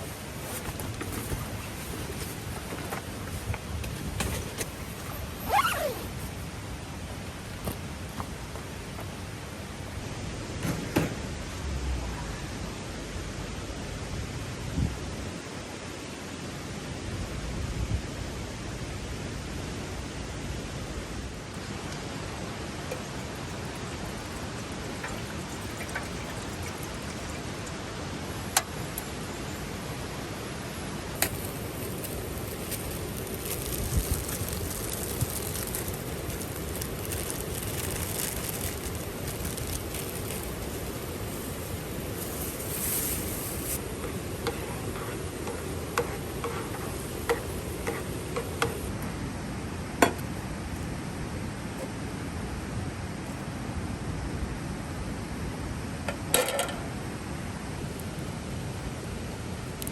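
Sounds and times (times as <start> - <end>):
mountain stream rushing: 19.1 - 53.9.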